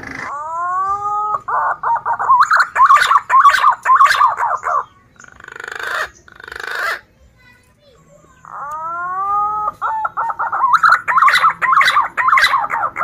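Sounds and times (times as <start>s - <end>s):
pigeon whistling call: 0.0s - 4.8s, 8.6s - 13.0s.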